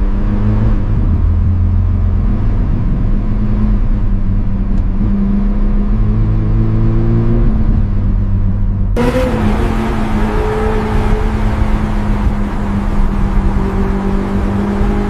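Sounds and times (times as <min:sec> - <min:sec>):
car engine running: 0:09.0 - 0:15.0.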